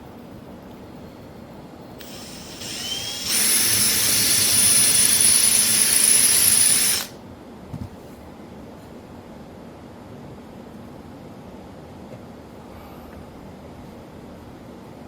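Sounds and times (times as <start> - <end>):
power drill whining: 2.0 - 7.2.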